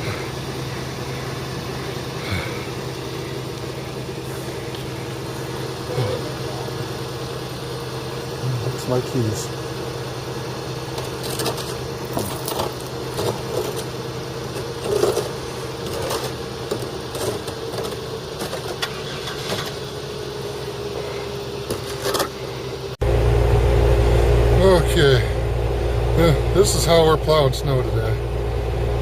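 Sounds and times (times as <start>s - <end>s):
car engine idling: 0.0s - 29.0s
deep engine hum: 0.0s - 29.0s
keys jingling: 11.0s - 13.9s.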